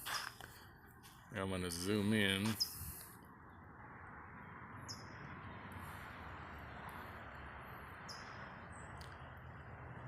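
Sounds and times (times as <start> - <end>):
outdoor background hum: 0.0 - 10.0
small birds chirping: 1.8 - 3.7, 4.8 - 5.2, 7.9 - 9.4.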